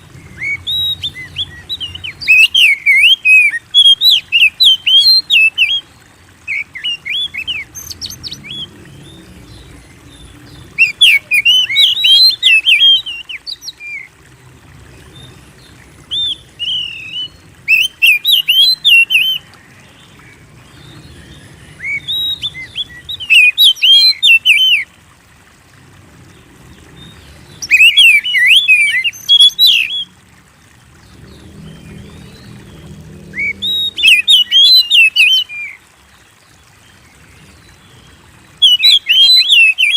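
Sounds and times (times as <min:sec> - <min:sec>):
bird singing chirps and whistles: 0:00.3 - 0:05.8, 0:10.8 - 0:14.1, 0:16.1 - 0:19.4, 0:21.7 - 0:24.8, 0:27.6 - 0:30.1, 0:33.4 - 0:35.8, 0:38.6 - 0:39.9.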